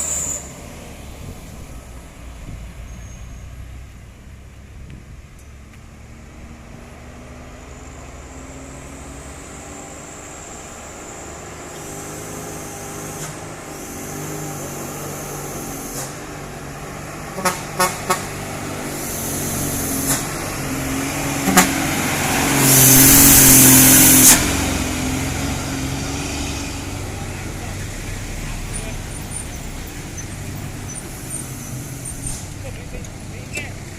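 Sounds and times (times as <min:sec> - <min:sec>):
truck diesel engine climbing: 0:00.0 - 0:33.9
truck horn toots: 0:17.3 - 0:19.1, 0:21.3 - 0:24.6
loud horn blast: 0:17.3 - 0:19.4, 0:21.1 - 0:24.8.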